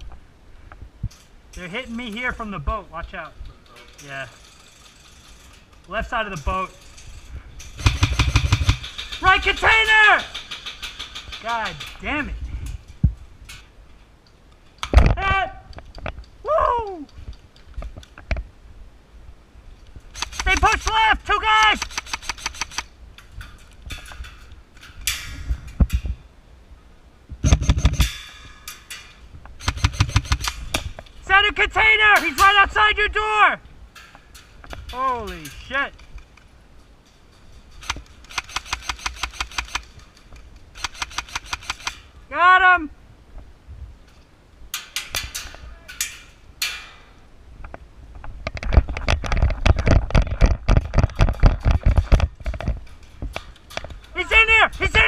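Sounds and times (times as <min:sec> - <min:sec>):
clicks and rustles: 0:00.0 - 0:16.4, 0:17.0 - 0:18.5, 0:19.7 - 0:26.2, 0:27.4 - 0:31.4, 0:33.9 - 0:42.1, 0:44.0 - 0:55.0
rattling equipment: 0:01.1 - 0:13.7, 0:20.1 - 0:26.2, 0:27.4 - 0:31.4, 0:33.9 - 0:42.1
airsoft rifle firing bursts: 0:07.8 - 0:08.9, 0:20.1 - 0:20.9, 0:21.8 - 0:22.9, 0:29.6 - 0:30.6, 0:37.8 - 0:39.9, 0:40.8 - 0:42.0.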